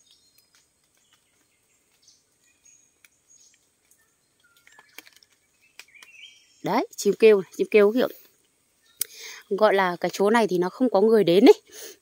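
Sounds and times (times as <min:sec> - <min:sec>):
forest bird calls: 0:00.0 - 0:10.7
faint ticks: 0:08.2 - 0:09.2.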